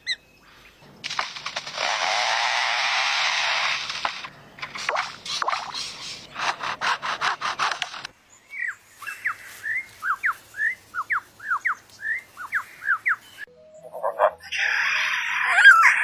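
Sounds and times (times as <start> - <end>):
harsh rasping bird strokes: 1.0 - 8.1.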